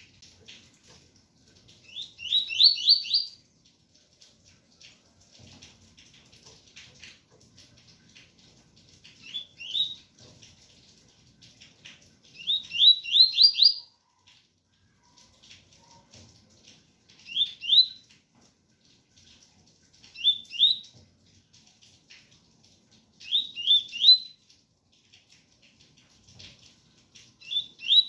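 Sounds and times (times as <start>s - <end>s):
faint rain patter: 0.0s - 28.0s
bird whistling song: 1.9s - 3.4s, 9.2s - 10.0s, 12.4s - 14.0s, 17.2s - 18.0s, 20.2s - 20.9s, 23.2s - 24.4s, 27.4s - 28.0s.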